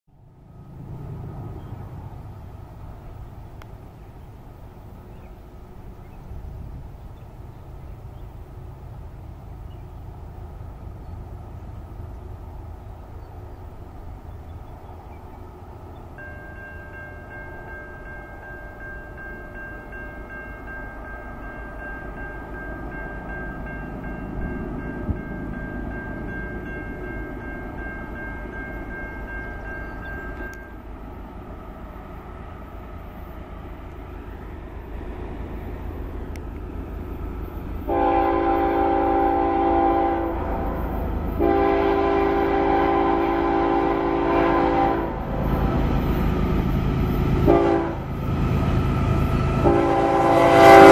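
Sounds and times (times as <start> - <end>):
freight cars rumbling on rails: 0.1 - 50.9
thin steady ringing tone: 16.2 - 30.9
locomotive air horn blasts: 37.9 - 45.3, 47.4 - 48.1, 49.4 - 50.9.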